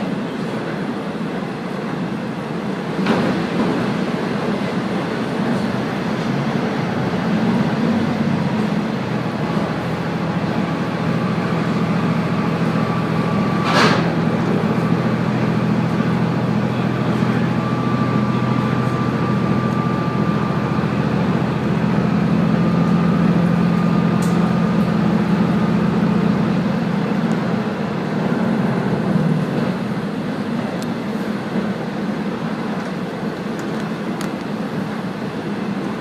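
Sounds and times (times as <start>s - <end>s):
railcar engine drone: 0.0s - 36.0s
wheel and rail noise: 0.0s - 36.0s.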